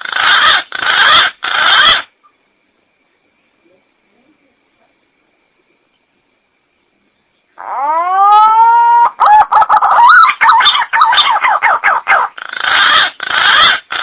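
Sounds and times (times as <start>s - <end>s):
pigeon calling with whistles: 0.0s - 2.1s, 7.8s - 14.0s.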